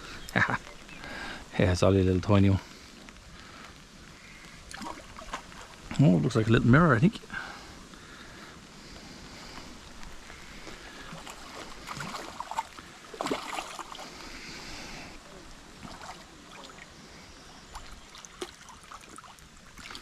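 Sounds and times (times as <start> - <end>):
water splashing and sloshing: 2.7 - 7.8, 8.8 - 20.0.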